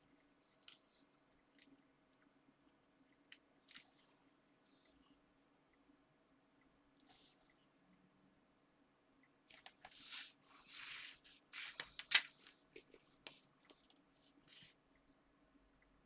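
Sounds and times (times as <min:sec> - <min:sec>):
crafting materials rustling: 0:09.5 - 0:15.2.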